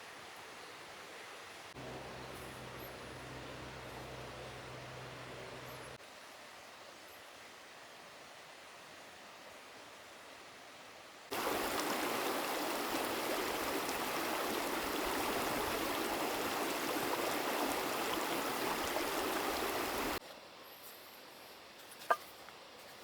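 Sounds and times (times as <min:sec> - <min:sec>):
faint steady hiss: 0:00.0 - 0:23.0
river rushing: 0:01.8 - 0:06.0, 0:11.3 - 0:20.2.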